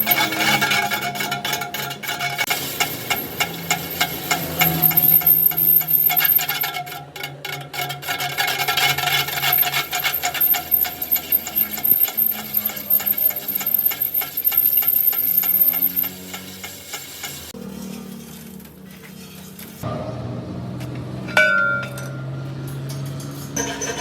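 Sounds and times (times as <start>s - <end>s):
thin high whine: 3.1s - 6.7s, 9.1s - 16.7s.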